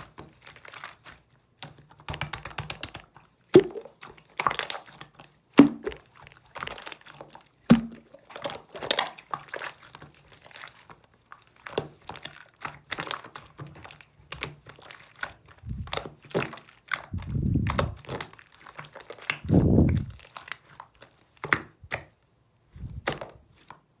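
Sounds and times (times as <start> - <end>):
dull low thumps: 15.6 - 16.0, 17.1 - 18.0, 19.4 - 20.2.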